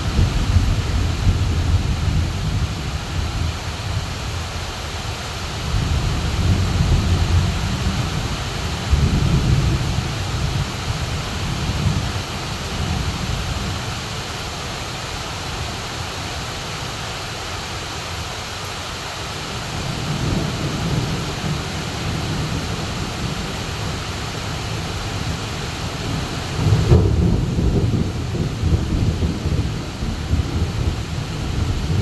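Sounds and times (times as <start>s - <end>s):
heavy rain pouring: 0.0s - 32.0s
thunder rumbling: 5.6s - 13.8s, 19.7s - 32.0s.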